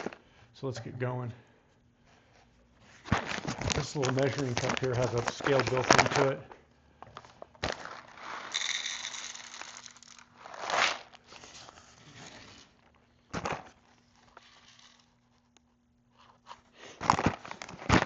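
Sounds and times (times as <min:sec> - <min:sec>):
coffee beans rattling in a cup: 0:07.7 - 0:11.2, 0:14.2 - 0:15.2.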